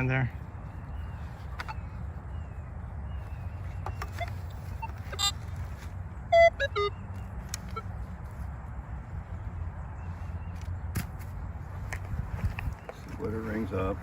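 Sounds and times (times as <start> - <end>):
metal detector beeps: 3.9 - 5.4, 6.3 - 7.0.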